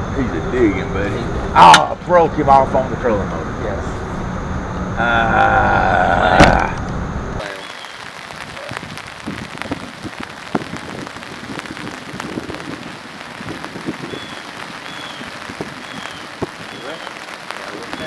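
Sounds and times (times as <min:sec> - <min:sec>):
rain pattering: 0:07.4 - 0:18.0
faint high chirps: 0:14.0 - 0:18.0.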